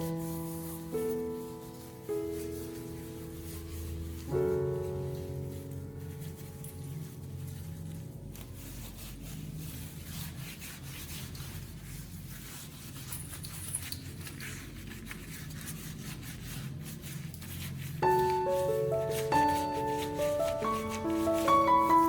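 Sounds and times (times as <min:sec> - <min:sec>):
piano music: 0:00.0 - 0:12.6, 0:17.9 - 0:22.0
rubbing and scraping: 0:00.0 - 0:22.0.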